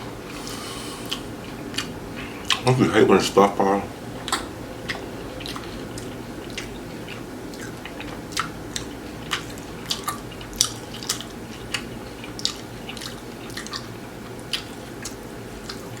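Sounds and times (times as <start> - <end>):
crunchy chewing: 0.0 - 2.8, 4.1 - 16.0.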